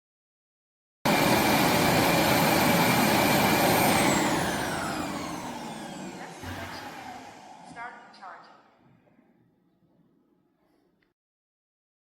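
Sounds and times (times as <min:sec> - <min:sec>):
vacuum motor whining: 0:01.1 - 0:08.4.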